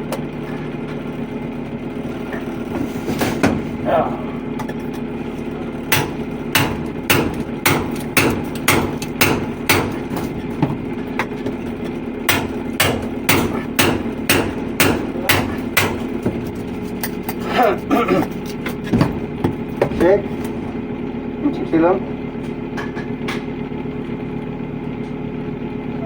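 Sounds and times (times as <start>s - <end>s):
engine running steadily: 0.0s - 26.0s
hammer strikes: 5.9s - 11.7s, 12.3s - 17.4s.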